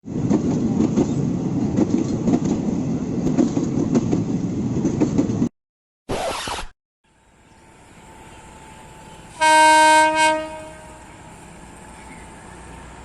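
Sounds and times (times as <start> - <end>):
train rumbling on rails: 0.0 - 5.5, 7.2 - 13.0
short burst of noise: 6.1 - 6.8.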